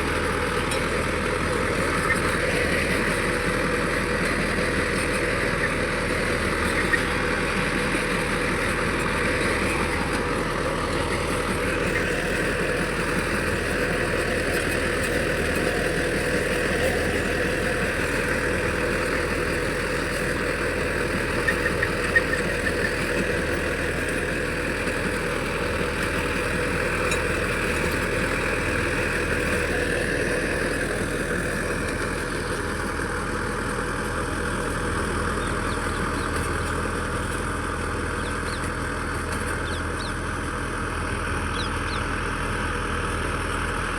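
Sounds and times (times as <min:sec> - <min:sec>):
tractor engine running: 0:00.0 - 0:43.9.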